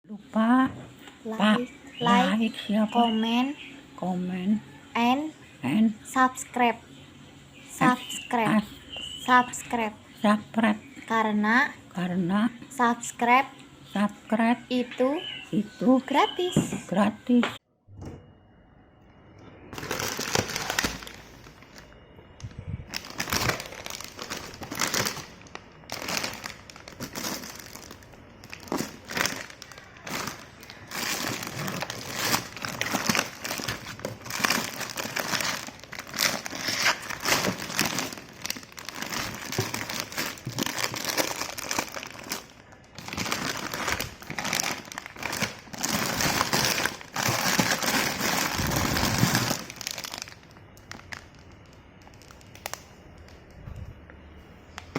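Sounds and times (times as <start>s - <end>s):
plastic packaging crinkling: 19.7s - 22.0s, 22.9s - 53.6s.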